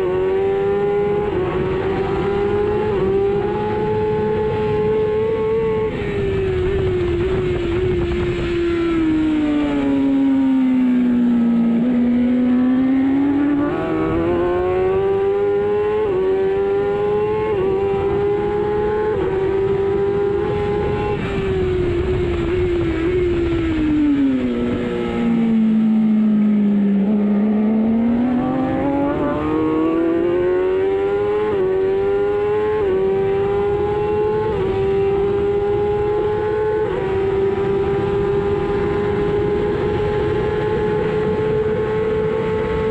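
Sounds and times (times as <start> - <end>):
motorcycle engine upshifting: 11.5 - 42.9.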